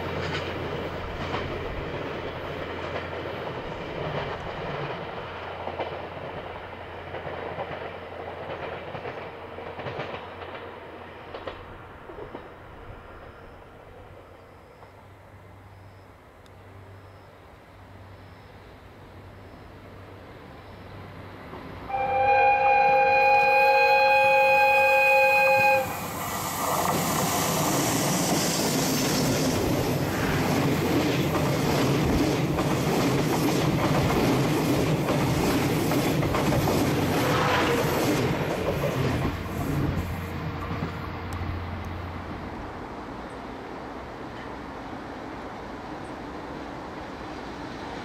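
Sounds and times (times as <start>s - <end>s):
train rumble: 0.0s - 48.0s
locomotive horn long blast: 21.9s - 26.2s, 37.2s - 38.0s
wheels clattering over rail joints: 26.3s - 41.0s.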